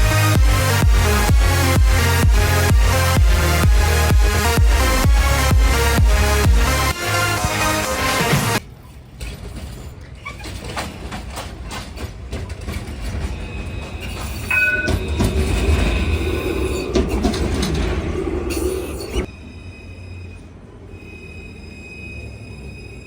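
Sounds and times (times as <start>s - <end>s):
music: 0.0s - 8.6s
tram running hum: 0.0s - 23.0s
high tram squeal: 6.7s - 23.0s
tram wheels clicking over rail joints: 8.6s - 19.3s.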